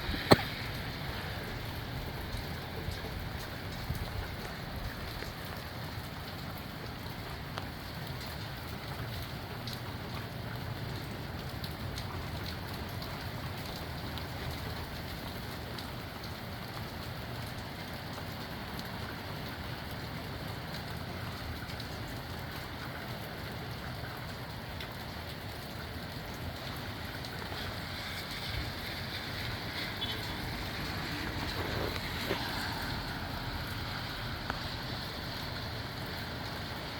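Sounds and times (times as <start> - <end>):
low wind rumble: 0.0 - 5.1
rain drops ticking: 0.0 - 36.9.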